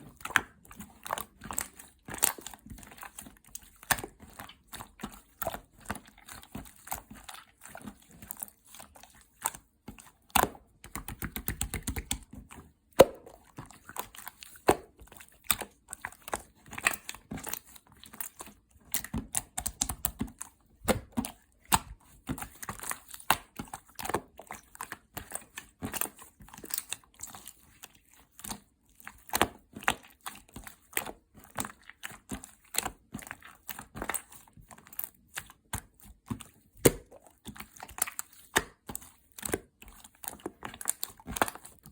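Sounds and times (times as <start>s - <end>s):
slime squishing with crackles: 0.0s - 41.9s.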